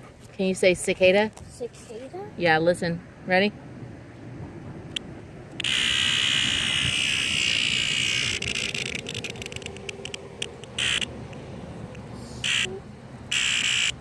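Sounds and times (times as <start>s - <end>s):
cicada rapid clicks: 4.9s - 12.7s, 13.3s - 14.0s
cicada rasping buzz: 5.6s - 11.4s, 12.2s - 14.0s.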